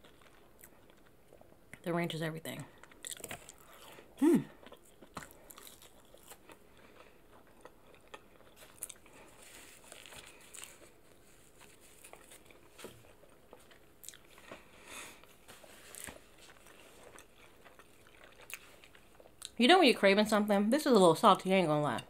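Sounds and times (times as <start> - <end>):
chewing crispy chicken: 2.7 - 19.6.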